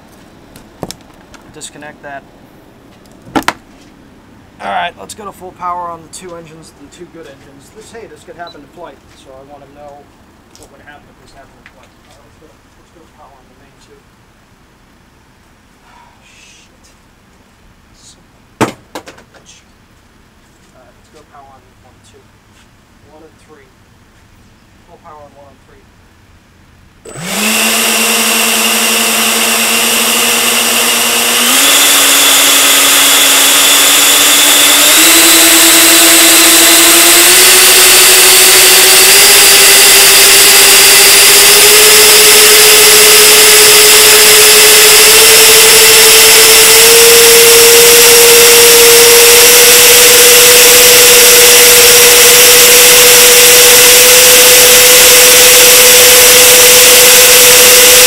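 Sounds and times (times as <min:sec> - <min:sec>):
electric ducted fans whining: 0:27.0 - 0:58.0.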